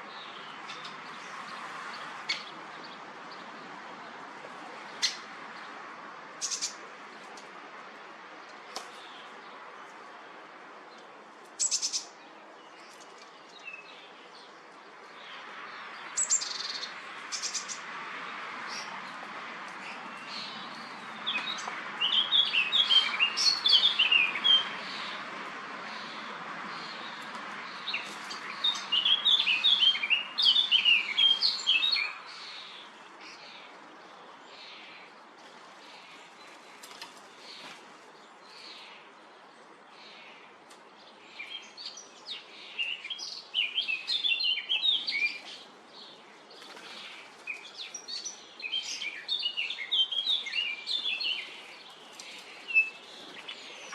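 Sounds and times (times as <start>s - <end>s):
songbirds chirping: 0.0s - 53.9s.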